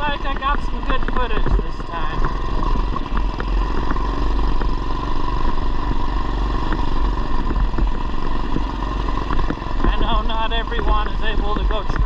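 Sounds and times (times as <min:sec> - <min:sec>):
mini bike engine running: 0:00.0 - 0:12.0
light ticks and rattles: 0:06.6 - 0:12.0.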